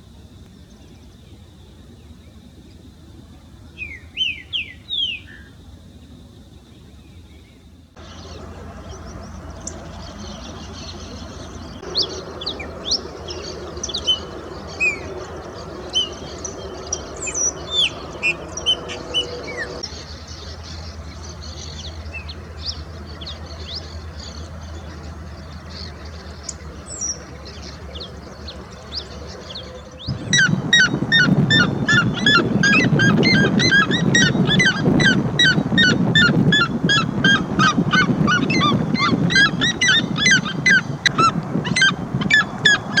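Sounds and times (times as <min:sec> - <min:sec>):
birds chirping and whistling: 0:08.0 - 0:19.8, 0:29.5 - 0:43.0
rapid harsh bird calls: 0:30.1 - 0:43.0.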